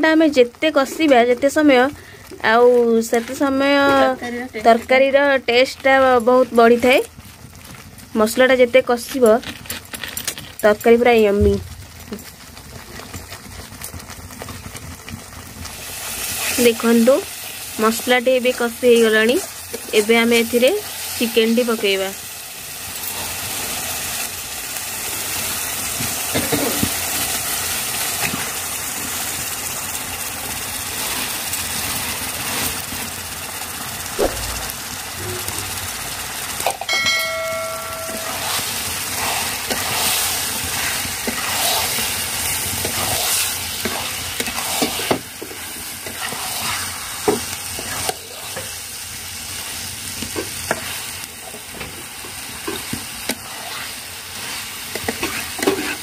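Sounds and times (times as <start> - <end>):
masala sizzling in a pan: 0.0 - 56.0
metal ladle scraping a pan: 38.1 - 45.1, 53.3 - 56.0.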